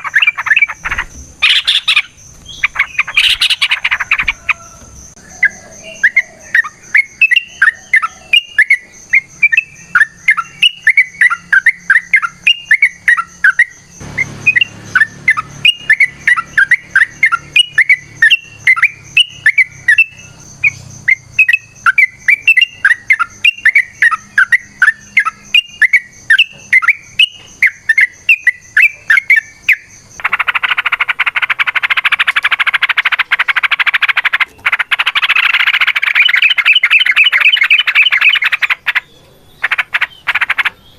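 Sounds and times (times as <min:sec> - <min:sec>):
bird harsh chatter: 0:00.0 - 0:08.3, 0:30.1 - 0:40.9.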